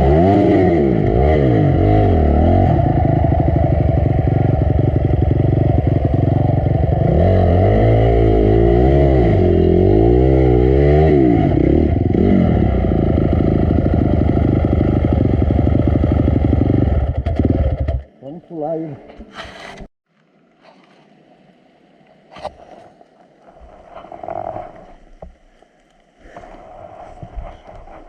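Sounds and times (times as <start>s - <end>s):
dirt bike engine revving: 0.0s - 18.1s.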